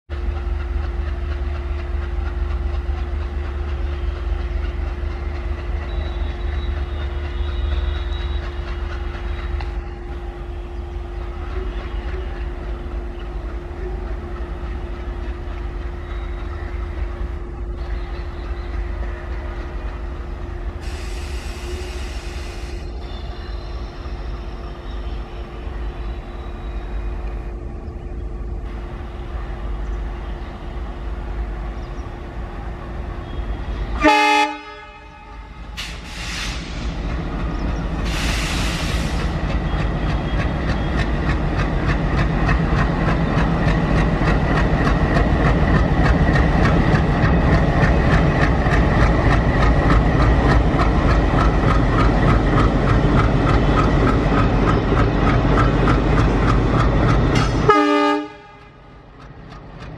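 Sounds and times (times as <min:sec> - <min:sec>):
diesel locomotive engine rumble: 0:00.1 - 0:59.9
train wheels rolling: 0:00.1 - 0:59.9
hiss: 0:20.8 - 0:23.0, 0:35.8 - 0:37.3, 0:38.0 - 0:39.5.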